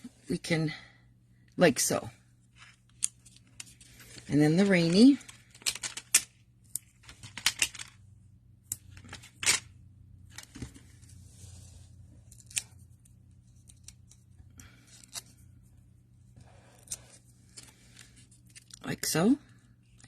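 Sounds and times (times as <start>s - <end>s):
paper pieces clicking and rustling: 2.9s - 8.0s.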